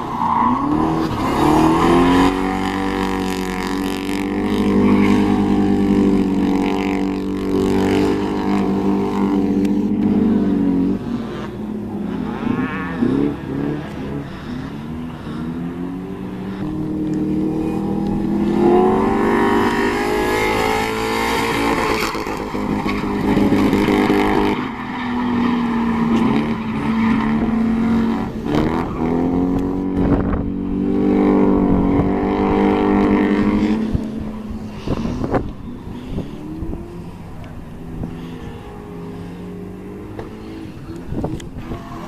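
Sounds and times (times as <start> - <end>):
car engine revving: 0.0 - 42.0.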